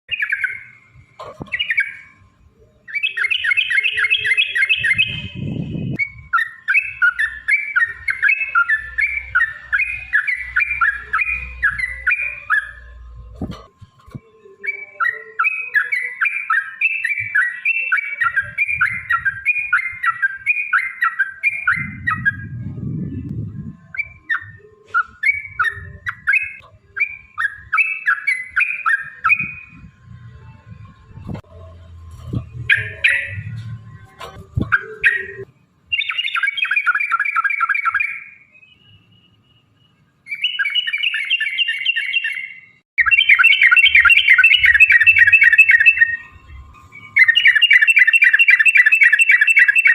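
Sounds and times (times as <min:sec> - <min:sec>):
low rumble: 0:21.8 - 0:24.2
bulbul singing bubbly chirps: 0:40.4 - 0:49.9.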